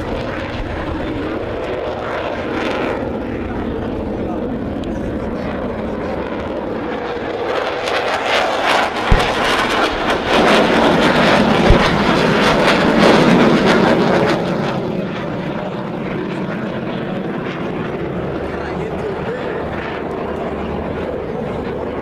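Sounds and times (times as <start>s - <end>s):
jet aircraft flying past: 0.0s - 22.0s
low thumps: 8.9s - 13.2s.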